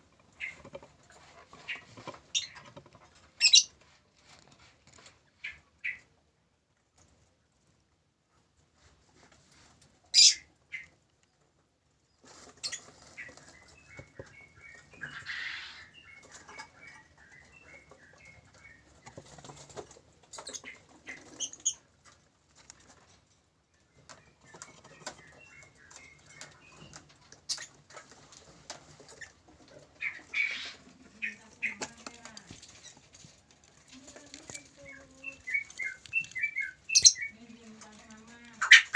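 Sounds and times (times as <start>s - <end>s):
birds chirping: 12.5s - 22.2s, 23.8s - 28.4s, 29.0s - 38.9s
scratching and clicks: 25.9s - 38.9s
bird squawks: 38.6s - 38.9s.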